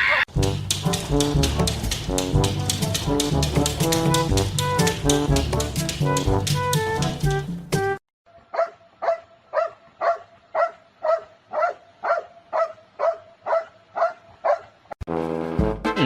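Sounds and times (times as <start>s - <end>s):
dog barking: 8.5s - 14.8s.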